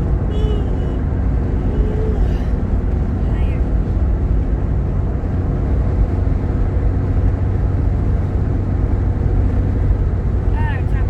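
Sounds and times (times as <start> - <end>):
car driving low rumble: 0.0 - 11.0.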